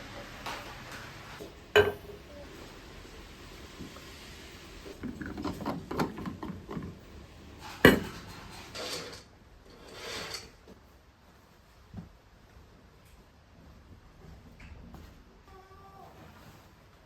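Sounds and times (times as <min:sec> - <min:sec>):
dishes and cutlery clattering: 0:01.8 - 0:02.2, 0:07.6 - 0:10.6.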